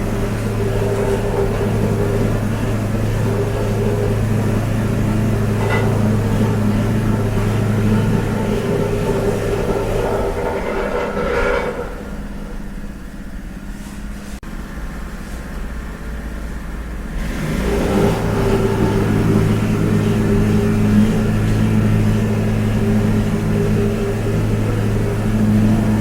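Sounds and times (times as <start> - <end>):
low motor hum: 0.0 - 26.0.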